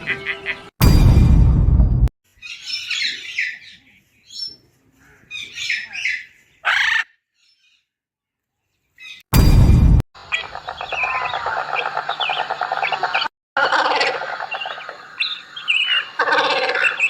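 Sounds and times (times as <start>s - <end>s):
bird squawking and chirping: 5.3s - 7.7s, 10.2s - 17.0s.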